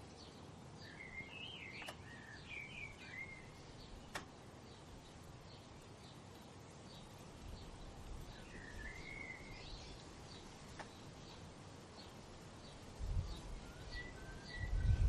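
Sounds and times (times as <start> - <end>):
low background hiss: 0.0 - 15.0
faint bird chirps: 0.1 - 15.0
songbird warbling: 0.8 - 4.2, 7.6 - 11.4
sharp clicks: 1.7 - 2.2, 4.0 - 4.4.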